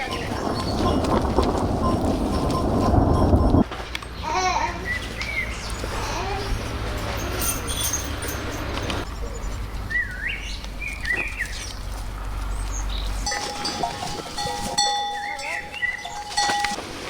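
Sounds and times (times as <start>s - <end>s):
farm animal cries: 13.3s - 16.8s.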